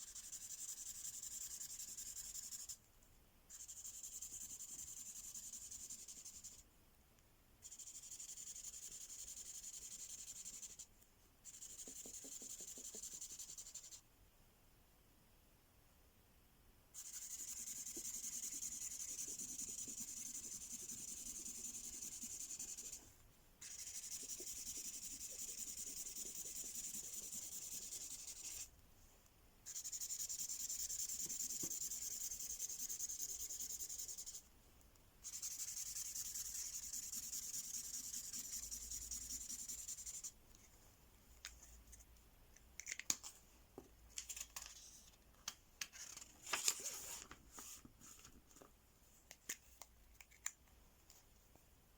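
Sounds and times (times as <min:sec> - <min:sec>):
felt-tip pen scratching on paper: 0:11.5 - 0:14.0, 0:17.0 - 0:23.0, 0:23.6 - 0:28.7, 0:29.7 - 0:34.4, 0:35.2 - 0:40.4.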